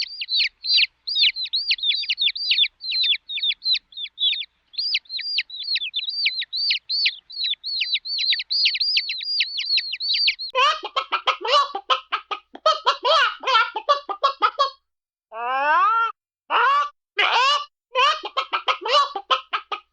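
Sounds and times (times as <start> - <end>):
cartoon bird chirps: 0.0 - 11.0
clucking chatter: 0.0 - 14.8, 16.5 - 19.9.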